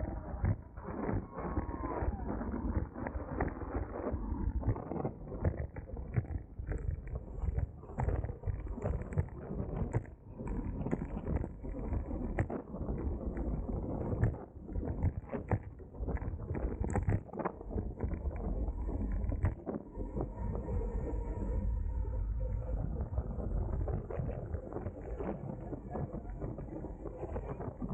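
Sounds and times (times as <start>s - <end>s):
bicycle road rumble: 6.3s - 27.9s.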